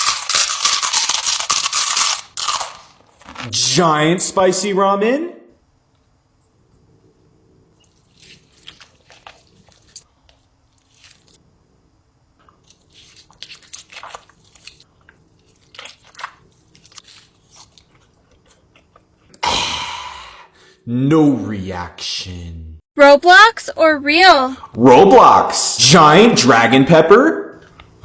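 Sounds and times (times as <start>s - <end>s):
wet chewing and smacks: 7.8s - 11.4s, 12.4s - 19.4s.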